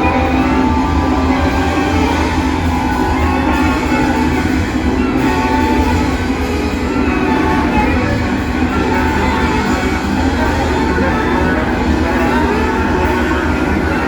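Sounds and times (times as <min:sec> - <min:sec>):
ensemble playing held tones: 0:00.0 - 0:14.0
low drone: 0:00.0 - 0:14.0.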